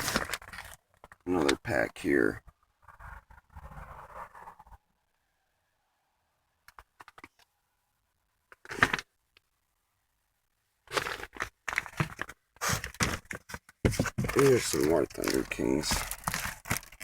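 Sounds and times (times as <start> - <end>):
packaging rustling and crinkling: 0.0 - 1.6, 10.9 - 17.0.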